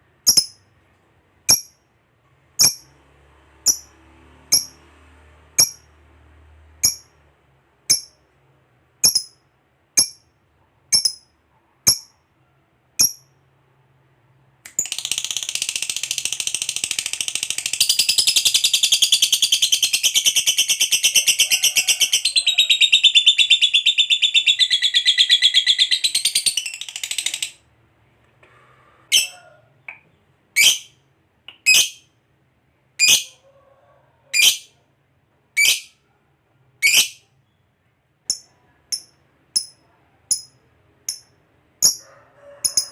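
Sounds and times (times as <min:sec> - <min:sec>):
lovebird chirping and trilling: 0:00.2 - 0:00.6, 0:02.6 - 0:02.9, 0:03.6 - 0:03.9, 0:04.5 - 0:04.8, 0:06.8 - 0:07.1, 0:09.0 - 0:09.4, 0:10.9 - 0:11.3, 0:14.8 - 0:27.6, 0:30.6 - 0:31.0, 0:31.6 - 0:32.1, 0:33.0 - 0:33.3, 0:34.3 - 0:34.7, 0:35.6 - 0:36.0, 0:36.8 - 0:37.3.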